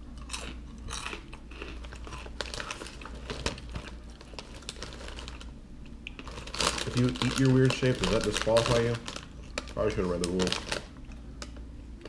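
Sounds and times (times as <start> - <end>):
crunchy snack chewing: 0.2 - 11.6
snack bag crinkling: 0.2 - 11.7.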